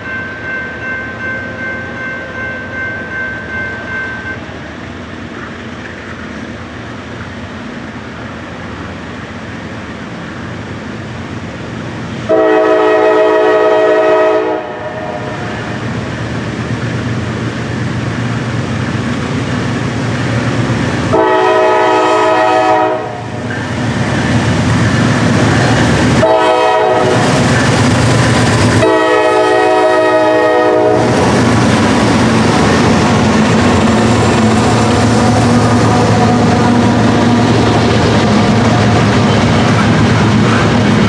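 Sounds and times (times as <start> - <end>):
freight train rumble: 0.0 - 41.0
locomotive air horn: 12.3 - 15.8, 21.1 - 23.4, 26.2 - 27.4, 28.8 - 31.1.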